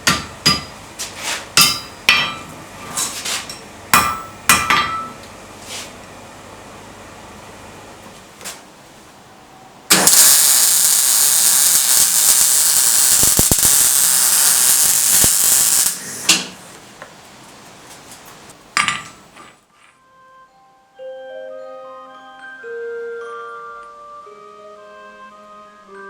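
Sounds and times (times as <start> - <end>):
power tool running: 9.9 - 16.3.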